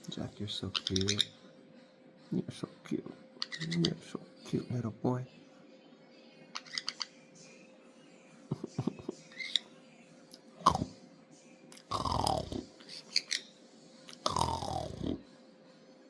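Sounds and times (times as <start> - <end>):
parrot clicks and chirps: 6.6 - 7.1.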